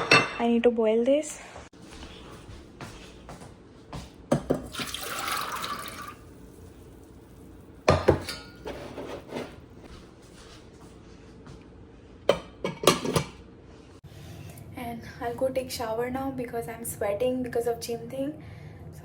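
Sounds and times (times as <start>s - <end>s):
pot and dishes clanking: 0.0s - 0.5s, 7.9s - 9.5s, 12.3s - 13.4s
water running from tap: 4.7s - 6.6s.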